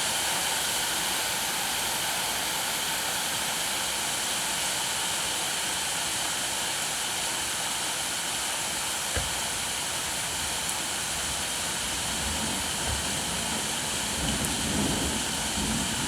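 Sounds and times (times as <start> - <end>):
steady rain: 0.0 - 16.0
sharp tap: 9.1 - 9.4.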